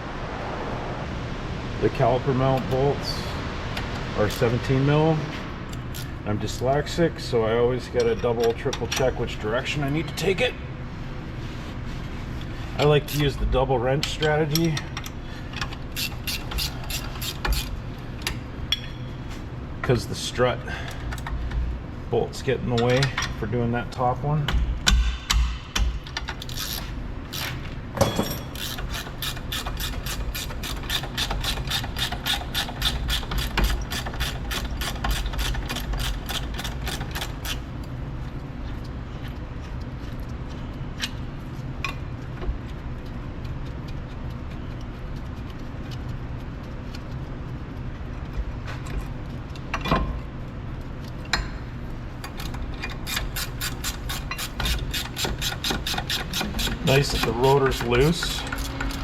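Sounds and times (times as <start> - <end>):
ratchet wrench clicking: 14.5 - 18.4, 25.8 - 27.6, 28.5 - 37.7, 52.2 - 59.0.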